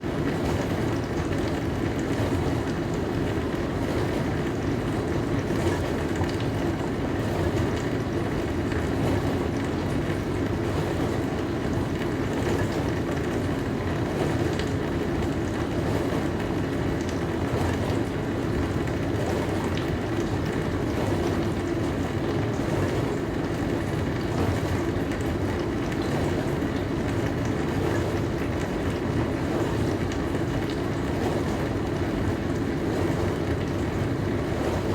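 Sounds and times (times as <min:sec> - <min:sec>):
dishwasher water rushing: 0:00.0 - 0:34.9.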